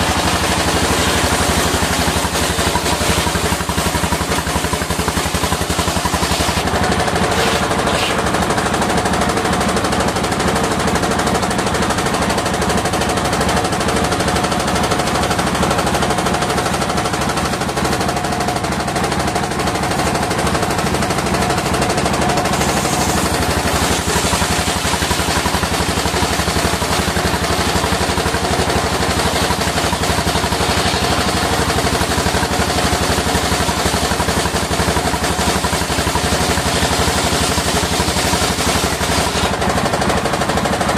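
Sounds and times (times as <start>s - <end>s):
saw humming: 0.0s - 9.0s, 19.9s - 33.7s
engine chattering: 0.0s - 10.5s.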